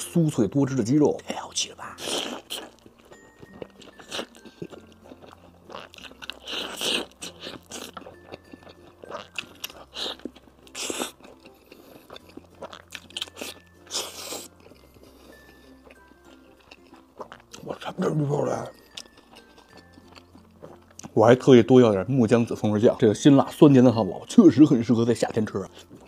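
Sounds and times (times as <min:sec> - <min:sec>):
wet chewing: 0:01.9 - 0:21.2.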